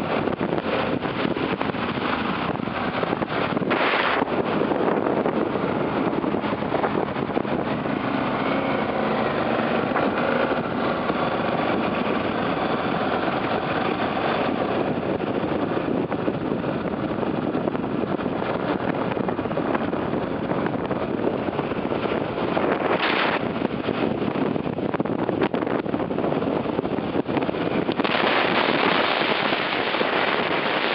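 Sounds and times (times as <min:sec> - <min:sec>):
motorcycle engine running: 0:00.0 - 0:30.9
rushing noise: 0:00.0 - 0:30.9.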